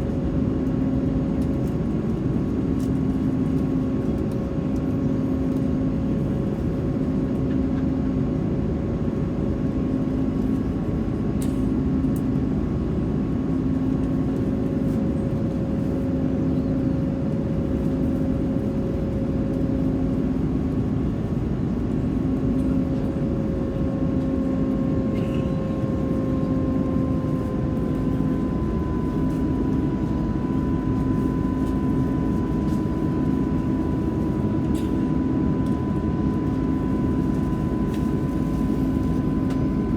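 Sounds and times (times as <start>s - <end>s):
jet engine roar in cabin: 0.0s - 39.9s.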